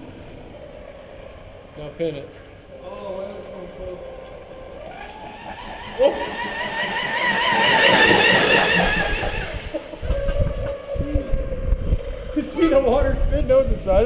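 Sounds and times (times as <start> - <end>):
rc boat motor whining: 0.0 - 13.0
wind gusts on microphone: 8.0 - 14.0.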